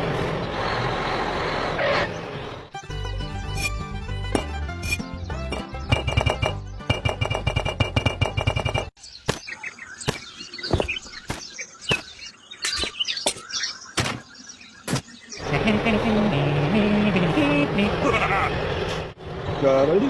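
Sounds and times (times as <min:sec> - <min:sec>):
birds chirping: 0:00.4 - 0:20.0
sharp knocks: 0:05.5 - 0:09.5.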